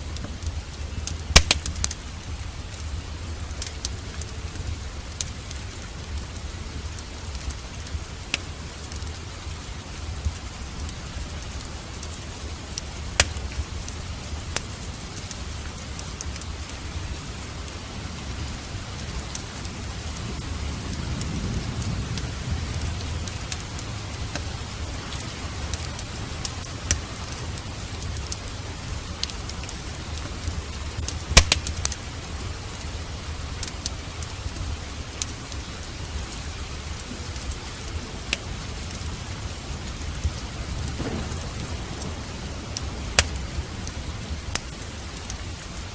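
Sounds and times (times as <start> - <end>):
heavy rain: 0.0 - 45.9
cracks: 1.3 - 2.0, 13.2 - 13.6, 31.0 - 32.0, 40.3 - 43.4
low thunder rumble: 16.4 - 35.0, 37.0 - 45.9.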